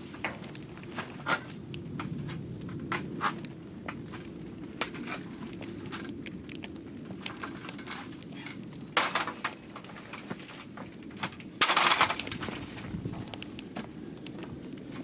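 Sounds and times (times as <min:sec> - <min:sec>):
clicks and knocks: 0:05.9 - 0:13.5.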